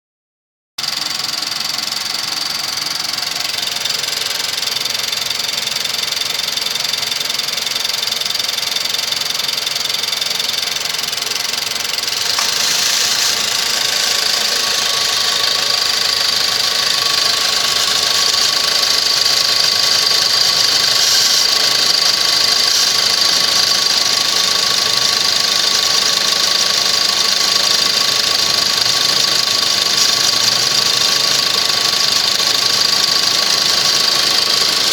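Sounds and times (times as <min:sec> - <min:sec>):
car engine idling: 0:00.8 - 0:34.9
thin high whine: 0:12.1 - 0:23.0.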